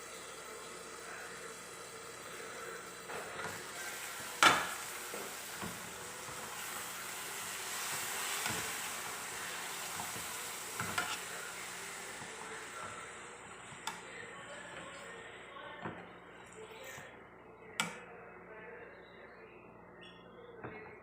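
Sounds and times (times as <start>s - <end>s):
food sizzling in a pan: 0.0s - 14.4s.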